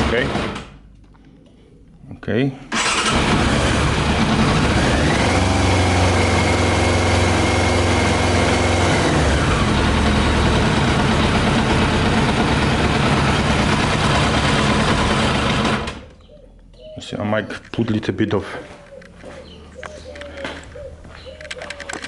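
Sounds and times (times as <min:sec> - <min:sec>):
motorcycle engine revving and misfiring: 0:00.0 - 0:00.8, 0:02.7 - 0:16.2.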